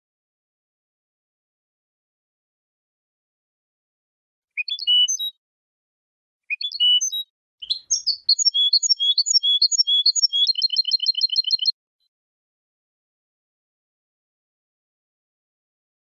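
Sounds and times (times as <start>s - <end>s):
goldfinch singing: 4.6s - 5.4s, 6.5s - 11.7s.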